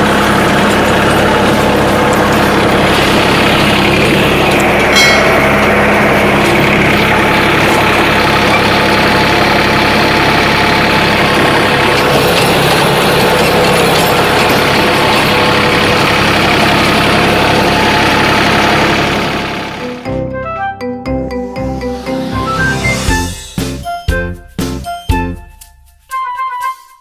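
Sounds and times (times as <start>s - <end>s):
rotavator churning: 0.0s - 20.0s
tractor diesel engine running: 0.0s - 25.3s.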